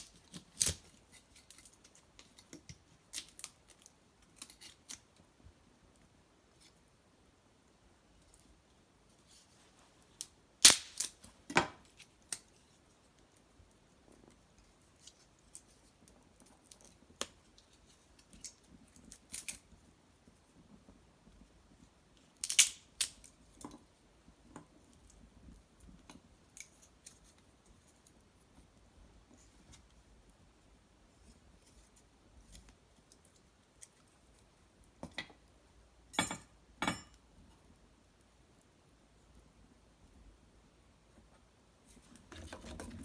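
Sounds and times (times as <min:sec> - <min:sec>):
wood fire crackling and popping: 0:00.0 - 0:05.1, 0:10.2 - 0:12.5.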